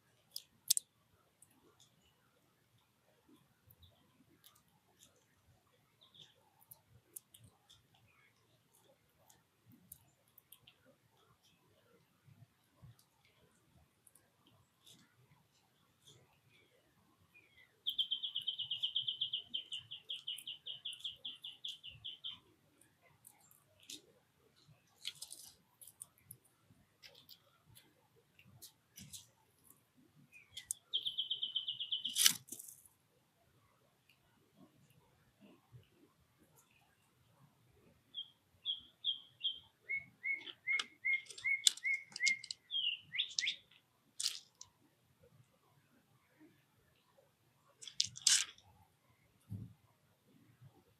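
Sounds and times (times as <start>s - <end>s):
songbird trilling: 17.5s - 22.4s, 30.4s - 32.2s, 38.1s - 43.8s.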